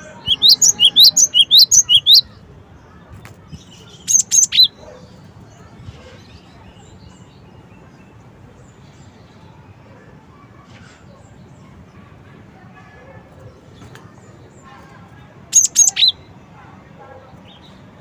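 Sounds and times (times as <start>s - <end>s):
bird singing whistled notes: 0.0s - 2.3s, 15.6s - 16.2s.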